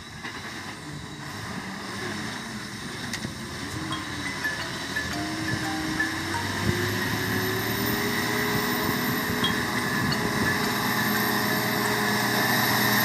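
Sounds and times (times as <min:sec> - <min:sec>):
thin high whine: 0:03.6 - 0:12.8.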